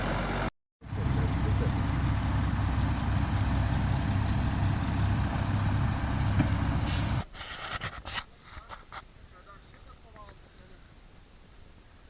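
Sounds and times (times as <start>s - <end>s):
diesel engine rumbling: 0.0s - 7.4s
sharp hiss of air: 6.8s - 7.6s.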